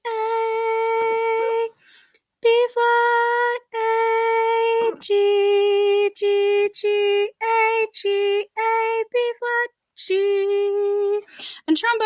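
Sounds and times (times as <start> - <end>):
woman singing held notes: 2.5 - 7.4.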